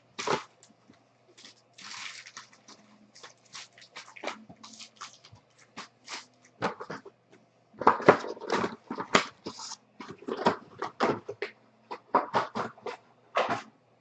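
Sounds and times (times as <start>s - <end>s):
card pack wrappers crinkling: 0.2s - 7.0s.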